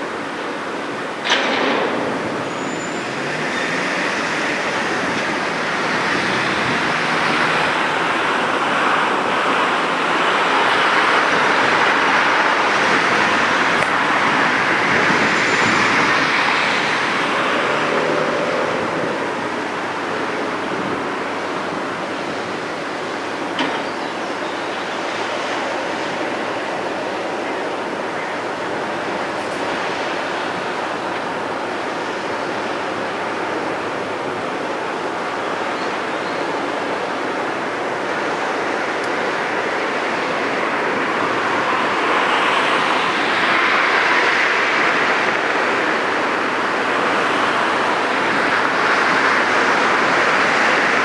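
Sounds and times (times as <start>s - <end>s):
vehicle passing: 12.7s - 20.6s.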